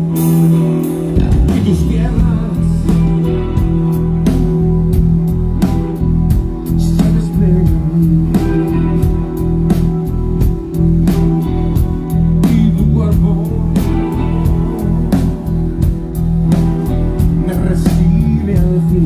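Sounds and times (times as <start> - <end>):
live band playing: 0.0 - 19.0
drum hits: 1.2 - 3.9.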